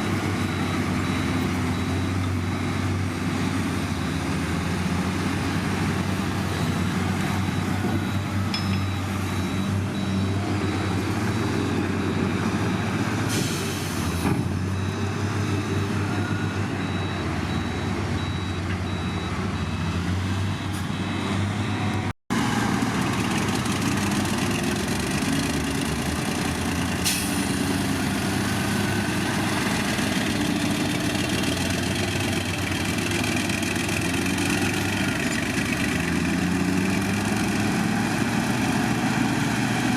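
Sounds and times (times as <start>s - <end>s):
diesel machinery running: 0.0s - 39.9s
faint high beeping: 7.4s - 12.3s.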